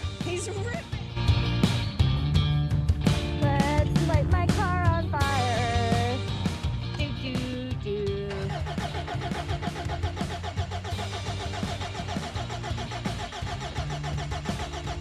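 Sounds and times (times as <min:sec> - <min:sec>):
car engine cranking and starting: 0:08.1 - 0:15.0.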